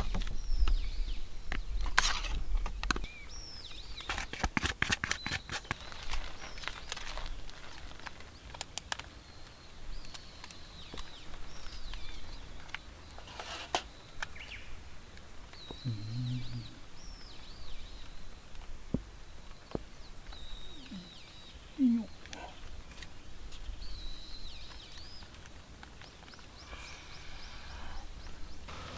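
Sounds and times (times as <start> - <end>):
birds whistling: 15.5 - 18.3, 19.5 - 22.7, 23.7 - 25.4, 26.0 - 28.9
low tone: 15.8 - 16.8.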